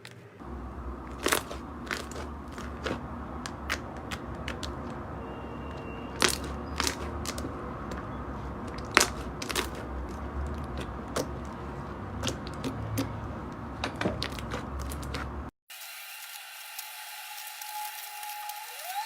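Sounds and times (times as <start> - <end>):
low hum: 0.3 - 13.8.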